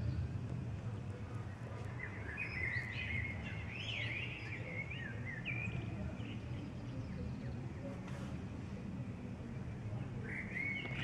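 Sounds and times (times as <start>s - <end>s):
steady low rumble: 0.0s - 3.8s.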